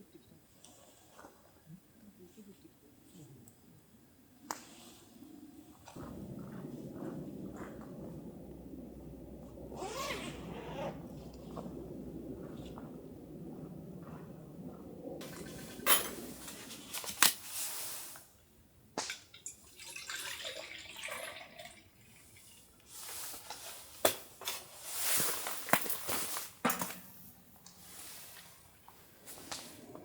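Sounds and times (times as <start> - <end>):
soft rustling: 4.6 - 18.2.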